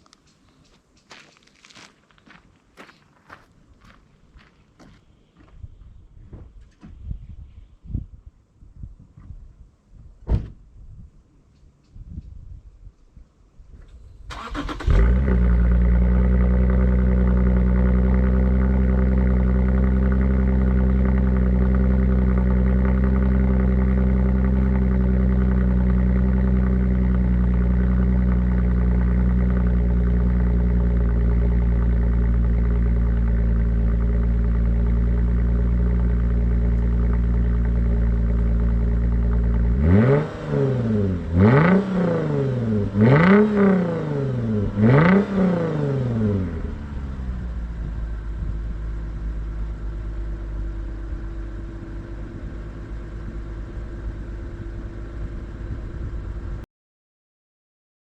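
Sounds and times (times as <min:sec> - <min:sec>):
car engine exhaust revving and idling: 0:13.9 - 0:56.6.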